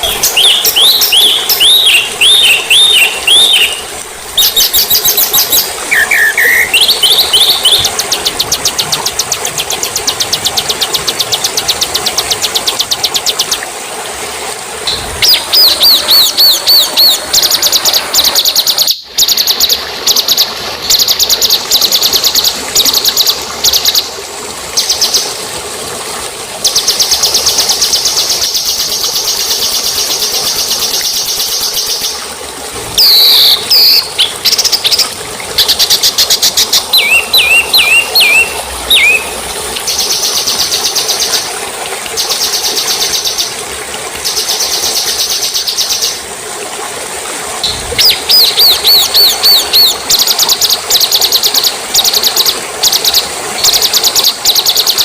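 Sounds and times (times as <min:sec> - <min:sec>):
songbirds singing: 0:00.0 - 0:13.6, 0:14.9 - 0:19.8, 0:33.0 - 0:35.0, 0:35.6 - 0:40.5, 0:47.6 - 0:50.0.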